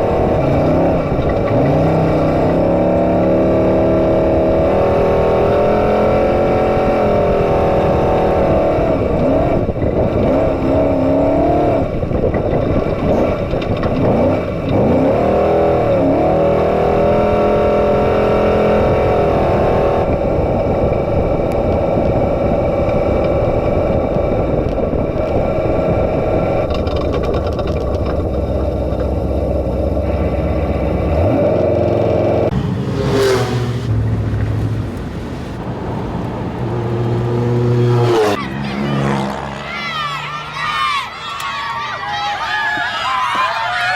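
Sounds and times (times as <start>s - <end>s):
truck engine revving: 0.0s - 42.4s
loud rush of noise: 32.5s - 43.9s.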